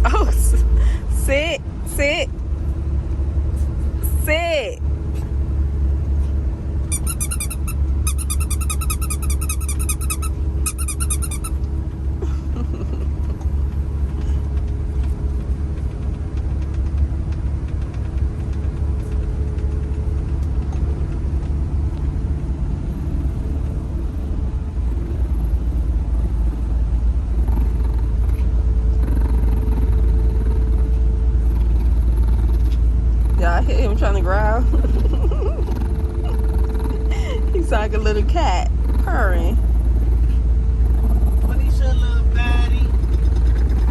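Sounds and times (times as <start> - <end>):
truck engine idling: 0.0 - 43.9
rapid high-pitched trilling: 6.9 - 11.6.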